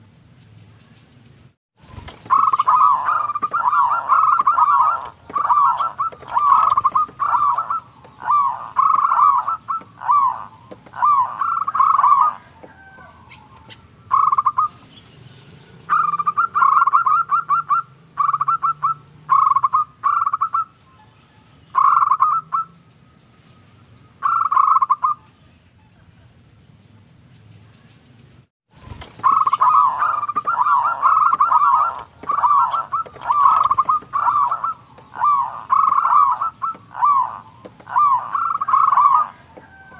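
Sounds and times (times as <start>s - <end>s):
dove cooing: 1.9s - 14.7s, 15.9s - 21.1s, 28.9s - 39.9s.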